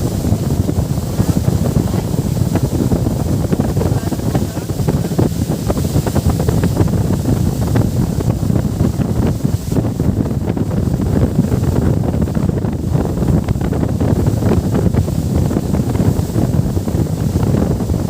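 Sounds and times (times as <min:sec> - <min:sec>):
rushing water: 0:00.0 - 0:18.0
wind buffeting microphone: 0:00.0 - 0:18.0.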